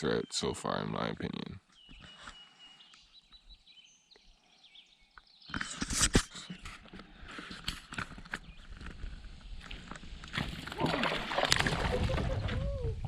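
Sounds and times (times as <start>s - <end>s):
faint bird calls: 11.8s - 13.0s.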